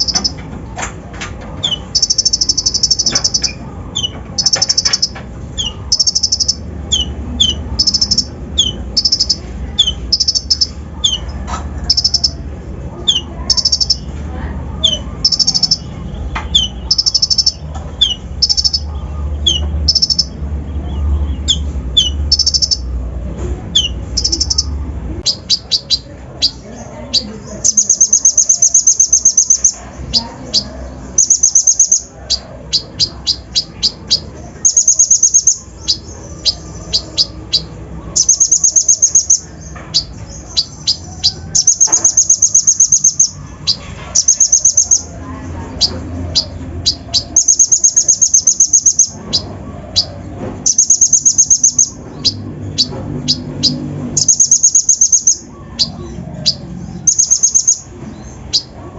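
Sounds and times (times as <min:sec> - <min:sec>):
sunbird singing chips and trills: 0:01.6 - 0:11.3, 0:45.8 - 0:58.8.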